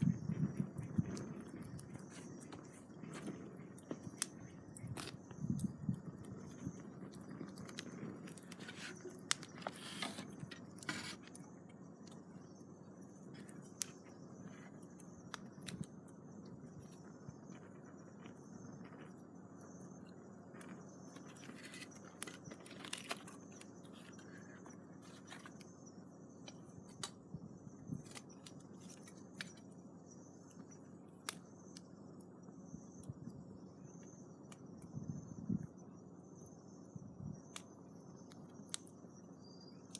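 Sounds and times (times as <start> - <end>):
campfire crackling and popping: 0.0 - 12.4, 13.0 - 25.8.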